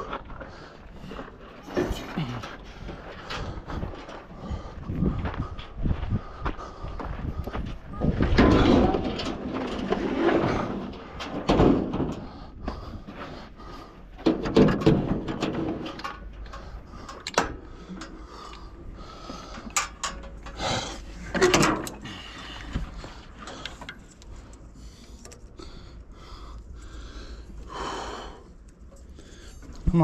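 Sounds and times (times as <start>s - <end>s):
hand tools clunking on metal: 1.1s - 4.2s, 8.2s - 12.5s, 13.7s - 24.5s.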